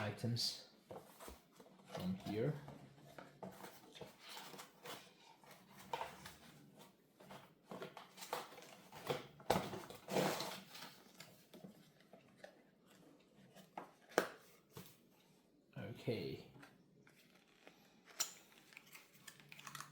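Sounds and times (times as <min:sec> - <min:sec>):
foam packaging rustling: 0:03.5 - 0:11.5.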